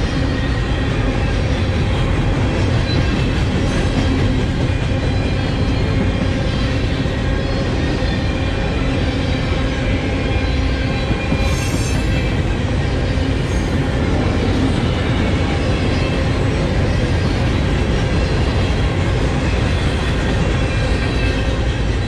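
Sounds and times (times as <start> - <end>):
train wheels rumbling and rattling: 0.0 - 22.0.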